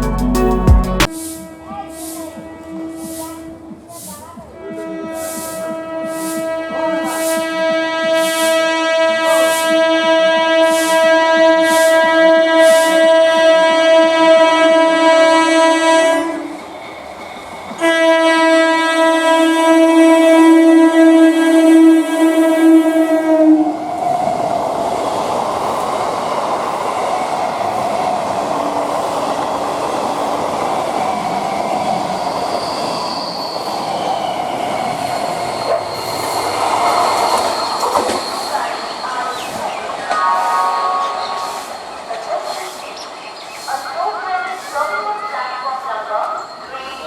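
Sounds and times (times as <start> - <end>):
train rumbling on rails: 1.0 - 47.0
train horn blasts: 1.1 - 16.6, 17.8 - 23.8, 40.2 - 41.8.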